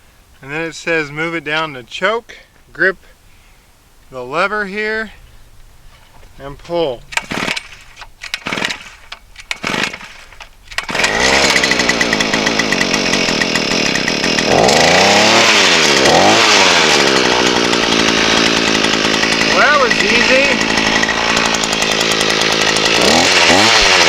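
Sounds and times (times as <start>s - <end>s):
recoil starter tugs: 6.5s - 24.0s
two-stroke engine running: 7.1s - 24.0s.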